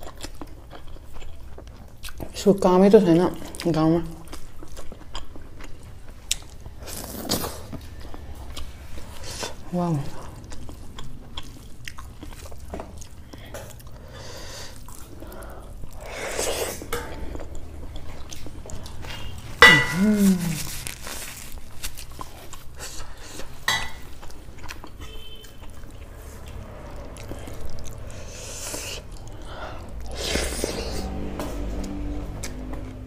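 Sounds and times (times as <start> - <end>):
chewing and wet mouth sounds: 0.0 - 33.0
person humming mm: 19.8 - 20.7.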